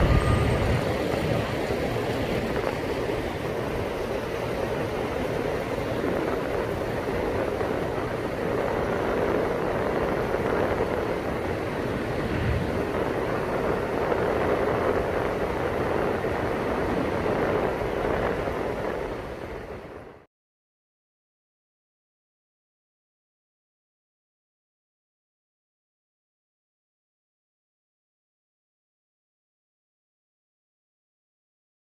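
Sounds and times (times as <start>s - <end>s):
traffic rumble: 0.0s - 20.2s.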